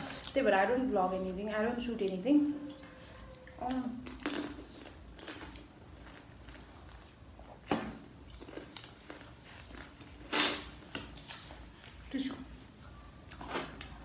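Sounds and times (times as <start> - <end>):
person chewing crunchy snacks: 4.0 - 7.7, 8.3 - 10.7.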